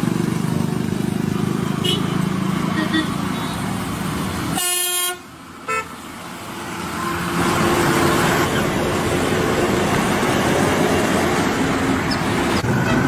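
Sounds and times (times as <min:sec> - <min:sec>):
engine and road noise: 0:00.0 - 0:13.0
vehicle horn honking: 0:01.8 - 0:03.2, 0:04.6 - 0:05.9, 0:12.8 - 0:13.0.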